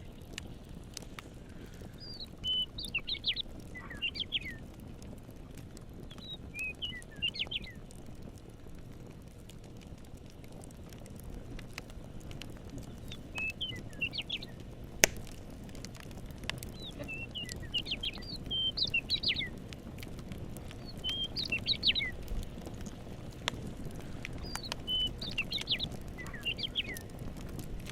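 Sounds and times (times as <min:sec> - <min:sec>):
campfire crackling and popping: 0:00.0 - 0:27.9
songbird chirping: 0:02.0 - 0:04.6, 0:06.1 - 0:07.8, 0:13.0 - 0:14.6, 0:16.7 - 0:19.5, 0:20.8 - 0:22.2, 0:24.3 - 0:27.1
steady low rumble: 0:07.9 - 0:27.9.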